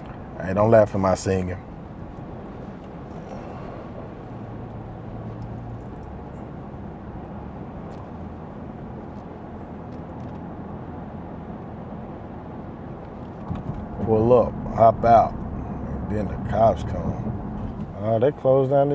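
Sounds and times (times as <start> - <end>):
car tyres on wet road: 0.0 - 18.9
low engine hum: 0.0 - 18.9.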